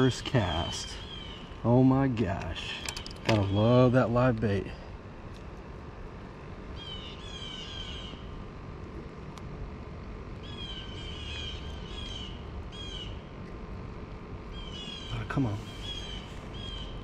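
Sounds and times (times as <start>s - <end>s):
songbird calling: 0.0s - 4.4s, 6.7s - 8.4s, 10.4s - 13.5s, 14.4s - 17.0s
steady background hiss: 0.0s - 17.0s.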